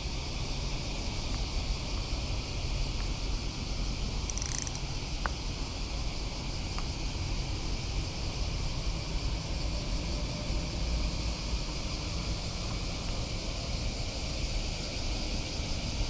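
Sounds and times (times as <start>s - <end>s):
insects buzzing: 0.7s - 6.6s
faint clicks: 4.3s - 5.4s.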